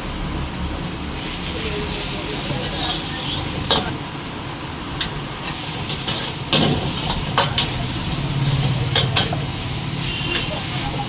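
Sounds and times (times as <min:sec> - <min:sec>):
noodles sizzling in a pan: 0:00.2 - 0:11.0
spatula scraping a pan: 0:02.5 - 0:04.0, 0:05.4 - 0:11.0.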